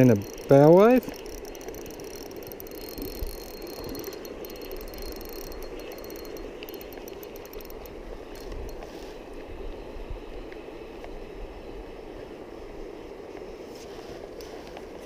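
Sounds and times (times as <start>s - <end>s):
fishing reel clicking: 0.0s - 9.0s.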